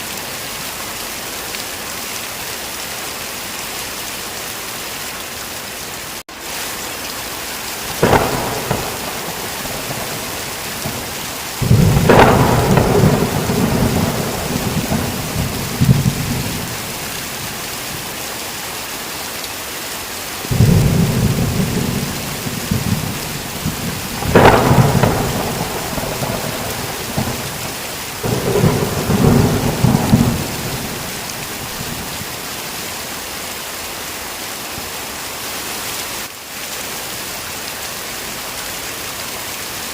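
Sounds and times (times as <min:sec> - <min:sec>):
heavy rain: 0:00.0 - 0:39.9
thunder cracks and rolling peals: 0:07.9 - 0:18.1, 0:20.5 - 0:32.4.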